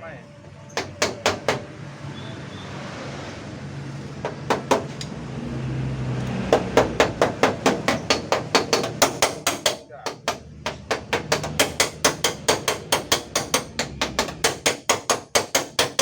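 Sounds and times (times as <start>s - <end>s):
hammer tapping metal panel: 6.5s - 16.0s.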